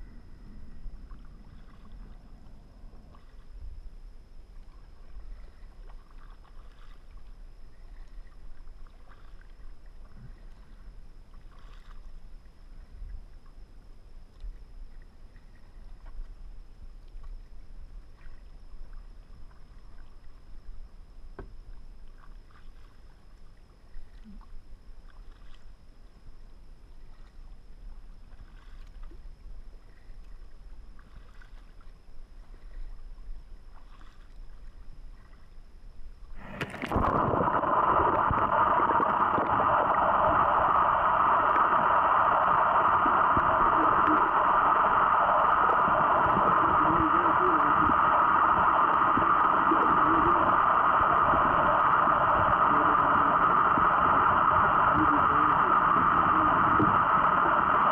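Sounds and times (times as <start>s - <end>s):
steady low rumble: 0.0s - 25.1s, 31.8s - 57.9s
paddle splashing water: 1.1s - 3.6s, 4.5s - 13.5s, 22.0s - 25.7s, 26.9s - 35.5s, 36.4s - 57.9s.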